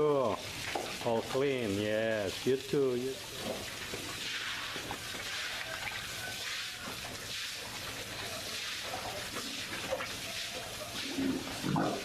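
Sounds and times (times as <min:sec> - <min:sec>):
water spraying: 0:00.0 - 0:12.0
pig grunts: 0:11.0 - 0:12.0.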